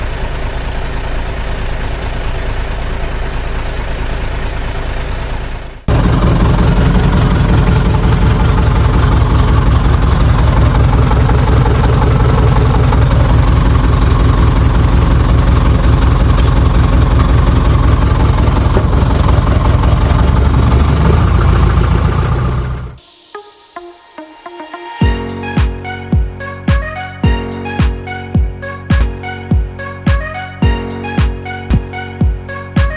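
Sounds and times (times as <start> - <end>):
vehicle engine rumbling: 0.0 - 23.0, 25.1 - 32.9.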